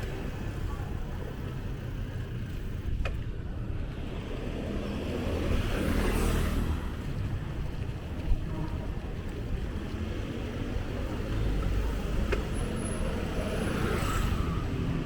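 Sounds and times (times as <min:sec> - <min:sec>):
motor vehicles rumbling: 0:00.0 - 0:15.0.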